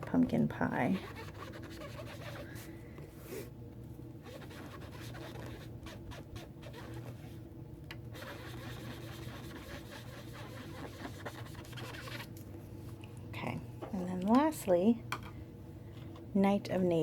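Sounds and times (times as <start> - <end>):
sponge rubbing on cardstock: 0.9 - 2.5, 4.2 - 7.2, 8.1 - 12.3.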